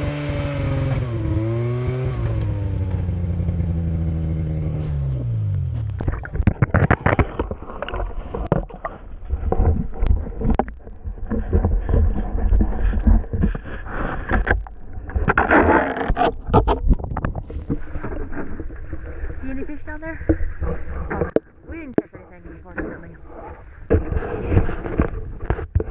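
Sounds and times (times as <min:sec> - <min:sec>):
low steady rumble: 0:00.0 - 0:24.5
knocks and rattles: 0:05.8 - 0:23.2.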